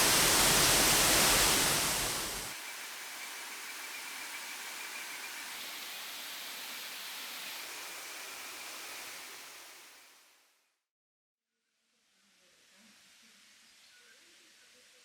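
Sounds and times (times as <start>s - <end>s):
waterfall roar: 0.0s - 2.5s.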